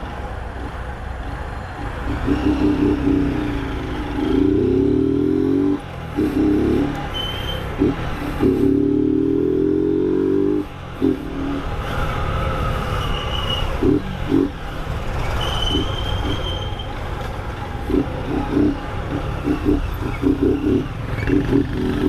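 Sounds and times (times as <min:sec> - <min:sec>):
motorcycle engine accelerating: 0:17.9 - 0:22.0.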